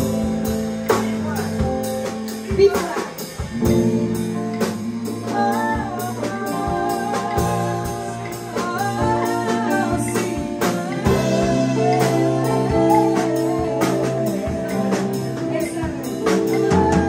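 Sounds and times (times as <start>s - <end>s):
drum hits on a steady beat: 0.0s - 17.0s
held chords: 0.0s - 17.0s
sliding melody line: 3.6s - 17.0s.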